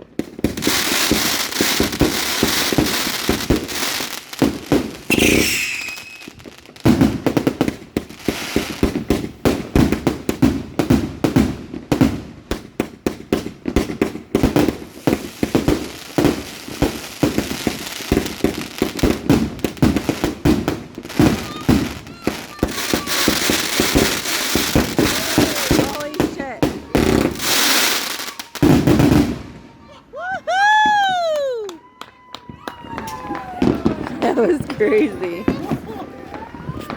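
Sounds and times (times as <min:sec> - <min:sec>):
fireworks cake firing shots: 0:00.0 - 0:29.7
falling firework whistle: 0:00.6 - 0:06.5, 0:21.2 - 0:26.3, 0:26.9 - 0:34.1.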